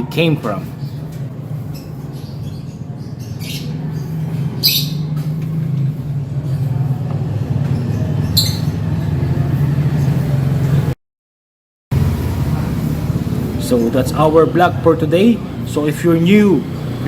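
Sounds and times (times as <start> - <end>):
lovebird squawks: 4.6 - 5.1.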